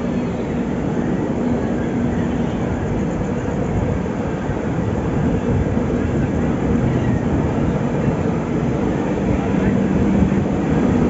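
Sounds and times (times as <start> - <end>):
train wheels and carriage noise: 0.0 - 11.0.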